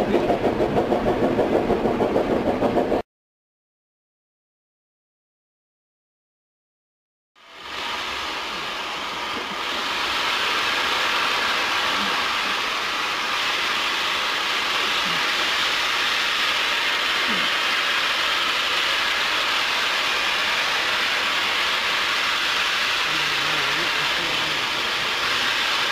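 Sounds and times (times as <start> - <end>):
steam locomotive hissing steam: 7.4 - 25.9.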